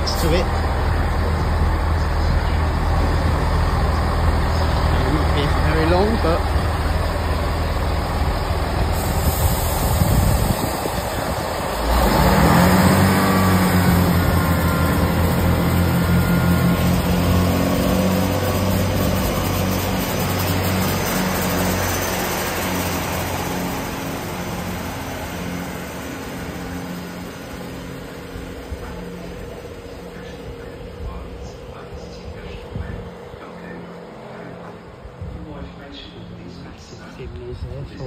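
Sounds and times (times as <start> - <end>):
diesel train engine drone: 0.0 - 38.0.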